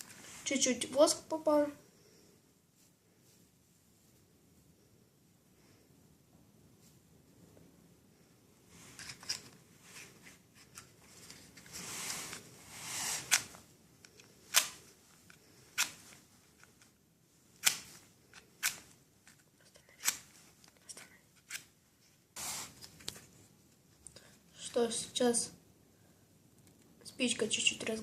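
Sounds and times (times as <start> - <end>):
sharp clicks and scrapes: 10.6 - 16.9.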